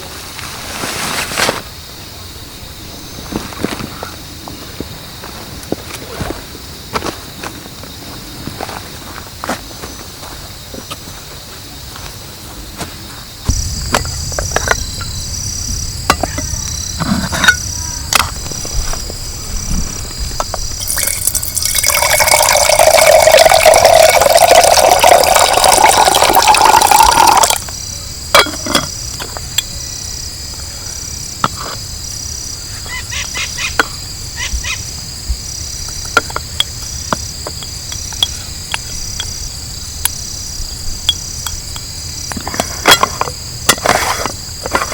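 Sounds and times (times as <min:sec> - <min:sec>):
crickets chirping: 0:00.0 - 0:44.9
liquid pouring into container: 0:20.8 - 0:27.6.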